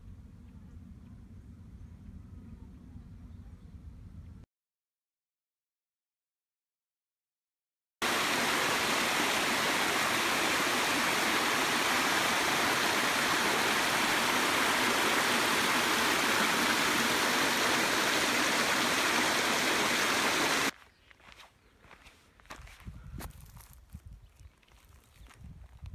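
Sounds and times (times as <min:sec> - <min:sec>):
waterfall rushing: 0:08.0 - 0:20.7.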